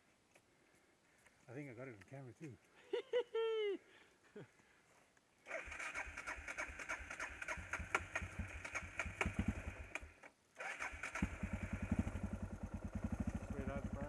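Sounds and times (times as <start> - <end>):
motorcycle starter cranking: 5.5 - 13.4
motorcycle engine idling: 6.0 - 10.2, 10.8 - 14.0.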